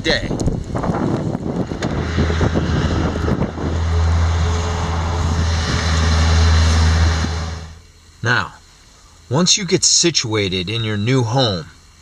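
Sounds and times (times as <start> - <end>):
wind noise: 0.0 - 7.8
vehicle engine humming: 0.3 - 8.0.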